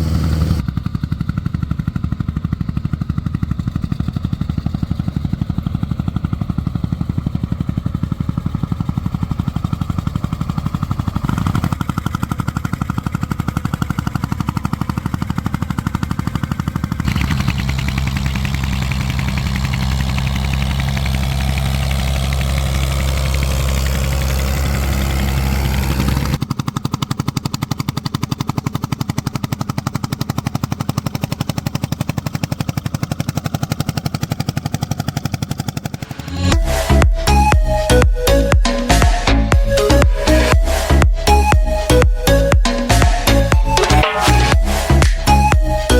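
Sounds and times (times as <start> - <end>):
tractor engine exhaust pops: 0.0 - 40.1.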